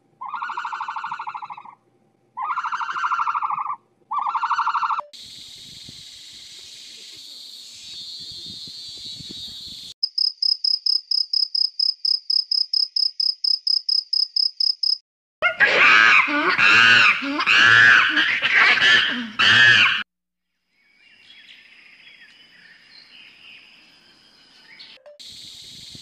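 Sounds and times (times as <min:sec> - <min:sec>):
monkey calling: 0:00.2 - 0:01.8, 0:02.4 - 0:05.0, 0:15.4 - 0:20.0
cricket chirping: 0:05.2 - 0:15.0.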